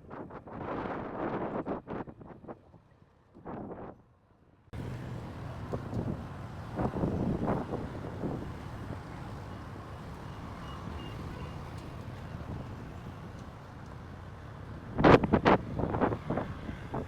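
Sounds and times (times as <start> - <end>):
wind buffeting microphone: 0.0 - 4.0, 4.8 - 9.8, 14.6 - 17.0.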